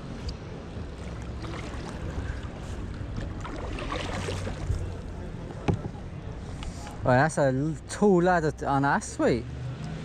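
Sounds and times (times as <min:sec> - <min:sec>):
paddle strokes splashing water: 0:00.9 - 0:05.2.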